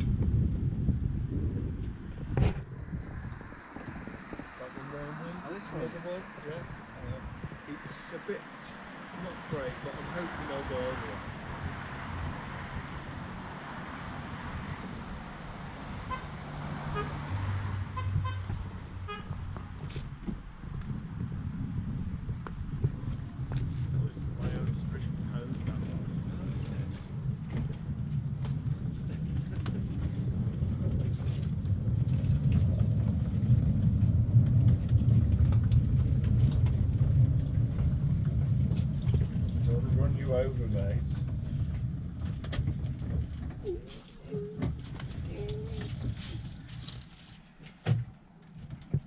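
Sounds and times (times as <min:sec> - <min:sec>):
miniature locomotive horn toots: 0:18.0 - 0:18.5, 0:19.1 - 0:19.4
train wheels rumbling on rails: 0:18.4 - 0:47.2.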